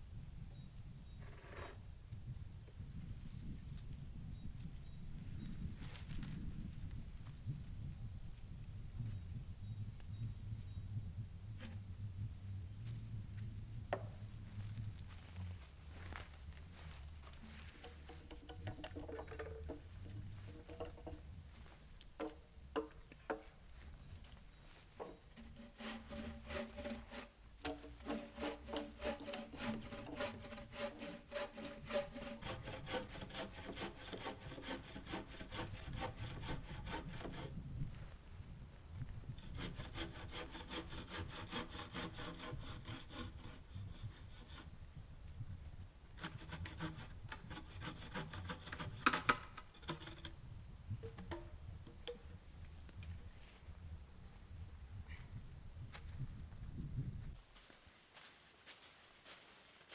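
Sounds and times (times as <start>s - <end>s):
hand saw cutting wood: 17.4s - 21.2s, 25.0s - 37.5s, 39.4s - 44.8s, 46.2s - 50.4s.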